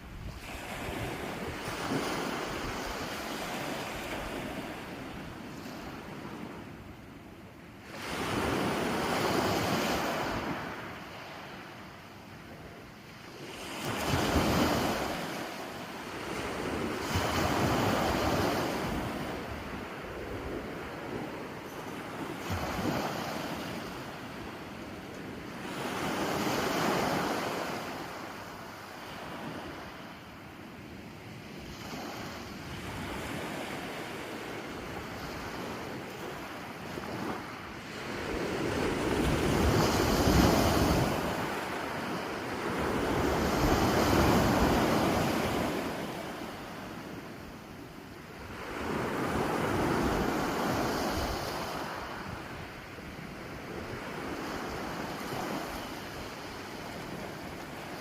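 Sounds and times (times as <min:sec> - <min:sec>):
wind noise on microphone: 0:00.0 - 0:07.1, 0:12.3 - 0:24.7, 0:31.0 - 0:47.5, 0:48.4 - 0:58.0
ocean waves breaking: 0:00.2 - 0:06.7, 0:31.5 - 0:47.4, 0:48.5 - 0:52.8.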